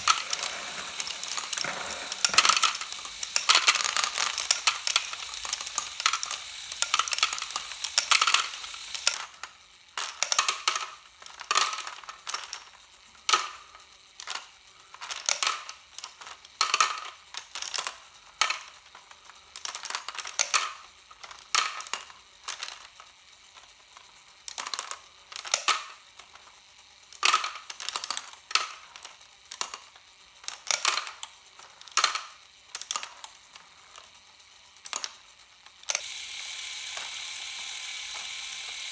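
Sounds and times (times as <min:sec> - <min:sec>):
plastic balls clattering on conveyor: 0:00.0 - 0:09.2, 0:35.9 - 0:38.9.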